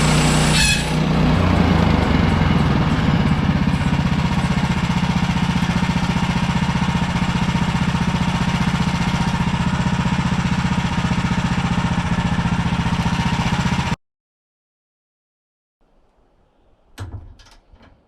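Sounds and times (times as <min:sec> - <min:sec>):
small gasoline engine running: 0:00.0 - 0:14.0.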